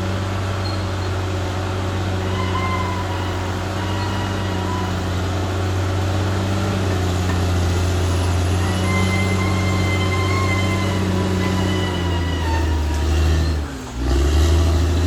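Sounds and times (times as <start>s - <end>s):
bulldozer diesel engine running: 0.0s - 15.0s
high wavering squeals: 0.5s - 6.0s, 7.7s - 14.0s.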